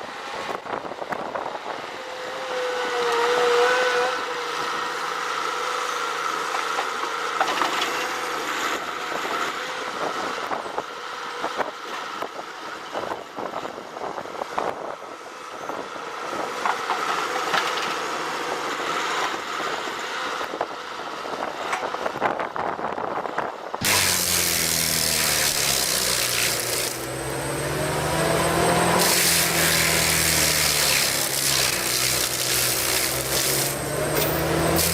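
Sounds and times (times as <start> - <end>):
wood cracking and snapping: 23.8 - 27.1, 29.0 - 33.8
machine engine running: 23.8 - 34.9.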